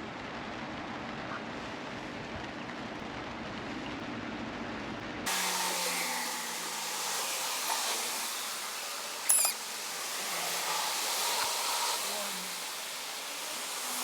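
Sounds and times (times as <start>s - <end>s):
chicken wings sizzling on grill: 5.3s - 14.0s
sharp high squeak: 9.2s - 9.6s.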